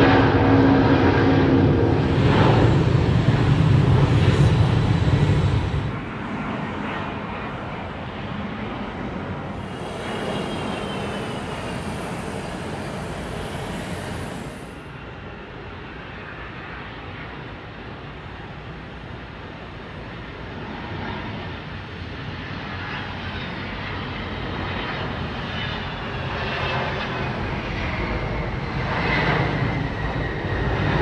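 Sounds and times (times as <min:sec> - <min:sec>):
jet engine rumble: 0:00.0 - 0:31.0
faint high whine: 0:09.5 - 0:15.0.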